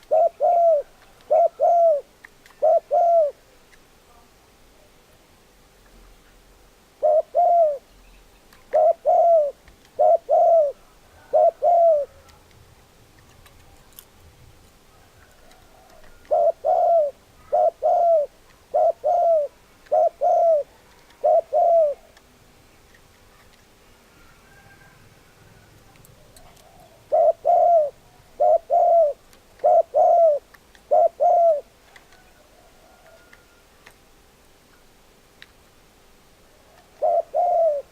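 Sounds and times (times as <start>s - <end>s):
dove cooing: 0.0s - 3.4s, 6.9s - 7.9s, 8.6s - 12.5s, 14.9s - 22.2s, 24.1s - 33.7s, 36.4s - 37.9s.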